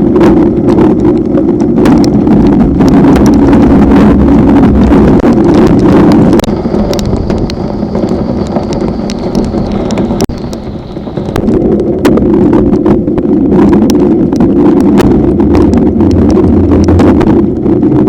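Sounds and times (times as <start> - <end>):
wind buffeting microphone: 0.0 - 18.0
small ticks and knocks: 5.2 - 12.2.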